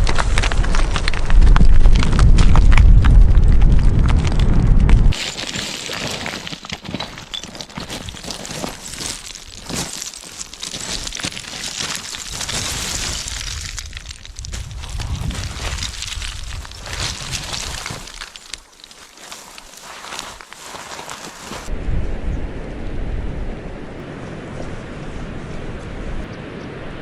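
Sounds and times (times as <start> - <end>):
wind buffeting microphone: 0.0 - 5.2, 12.6 - 18.0
crackling rustling with small clicks: 0.0 - 21.7.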